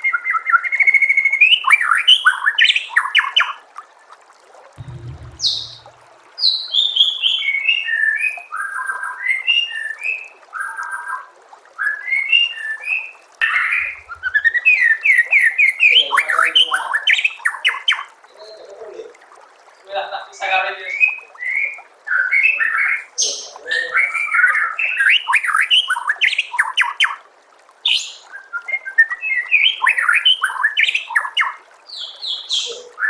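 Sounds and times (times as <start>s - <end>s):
brief low hum: 4.8s - 6.2s.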